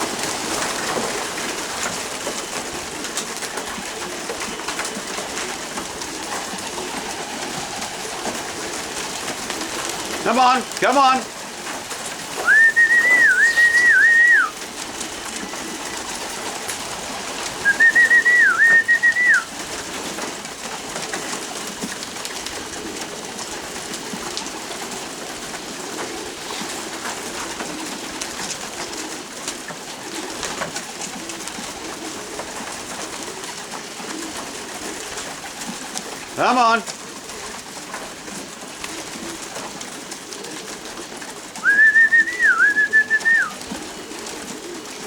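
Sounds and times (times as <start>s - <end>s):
pigeons cooing: 0.0s - 45.0s
whistled calls: 12.3s - 14.6s, 17.6s - 19.5s, 41.6s - 43.7s.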